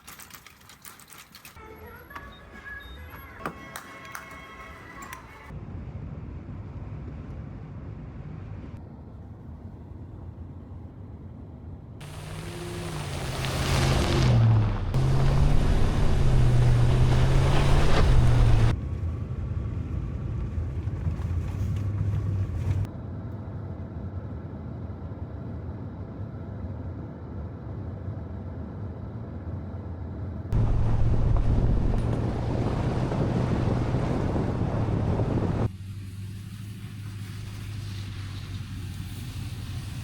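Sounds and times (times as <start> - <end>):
truck engine hum: 0.0 - 40.0
road and wind noise: 5.0 - 40.0.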